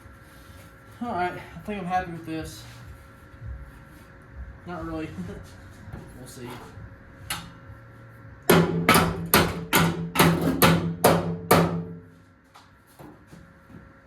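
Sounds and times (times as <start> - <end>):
hammer on sheet metal: 8.5 - 12.1.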